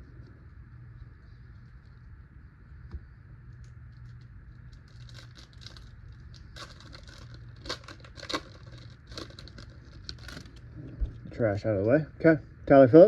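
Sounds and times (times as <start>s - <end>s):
low steady hum: 0.0s - 13.0s
wrapper crinkling and tearing: 3.9s - 10.7s.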